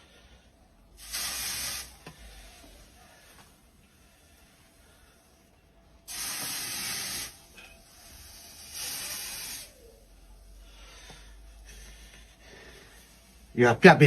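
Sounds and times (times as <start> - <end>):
hot steel hissing in water: 1.0 - 2.8, 6.1 - 9.9.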